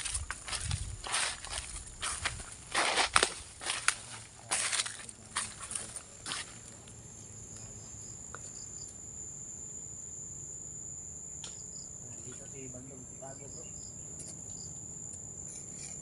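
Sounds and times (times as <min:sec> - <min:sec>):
insects trilling: 0:00.0 - 0:16.0
small click: 0:11.4 - 0:11.6.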